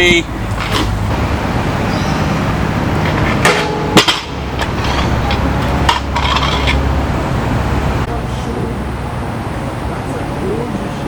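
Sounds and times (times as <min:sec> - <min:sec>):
steady low rumble: 0:00.0 - 0:11.0
metal clanks and knocks: 0:02.9 - 0:07.0.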